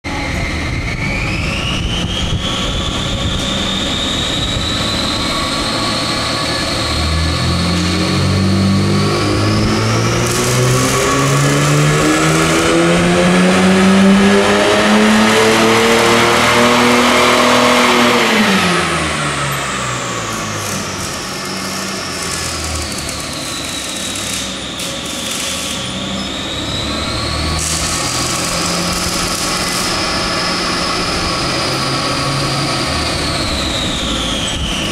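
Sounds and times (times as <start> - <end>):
car engine under load: 0.0 - 34.9
tyres and rollers whining: 0.1 - 34.9.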